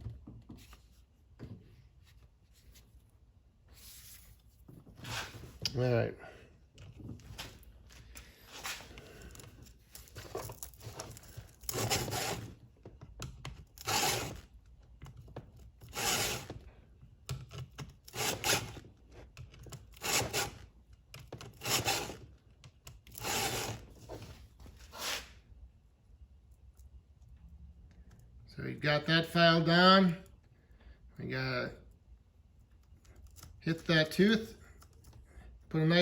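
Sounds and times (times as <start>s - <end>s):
file rasping on chain: 11.7s - 12.5s, 13.8s - 14.4s, 15.9s - 16.5s, 18.1s - 18.8s, 20.0s - 20.6s, 21.6s - 22.2s, 23.2s - 23.8s.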